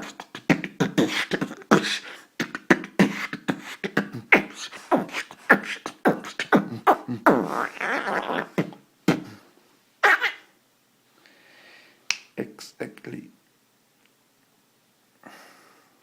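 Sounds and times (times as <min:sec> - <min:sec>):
beatboxing: 0:00.0 - 0:10.4.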